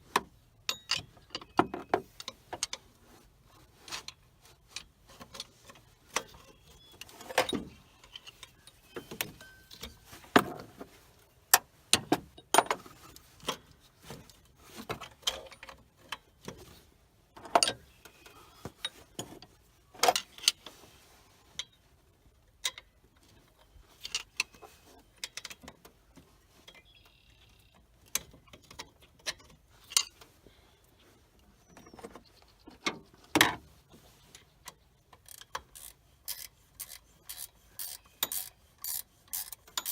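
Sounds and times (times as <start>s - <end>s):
hand tools clinking on metal: 0.7s - 2.4s, 35.4s - 39.9s.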